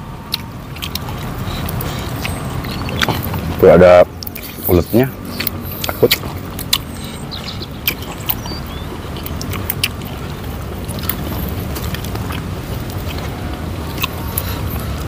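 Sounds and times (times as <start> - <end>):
crisp chewing of leafy greens: 0.3 - 15.0.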